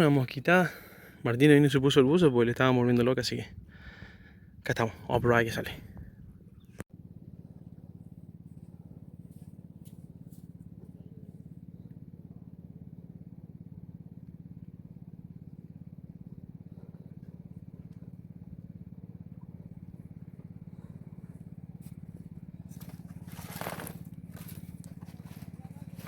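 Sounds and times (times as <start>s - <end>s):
small engine running: 6.9s - 26.0s.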